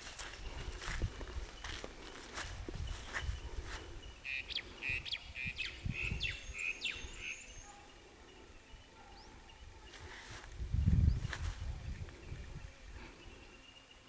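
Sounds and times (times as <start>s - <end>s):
bird calling with chirps: 1.6s - 10.0s.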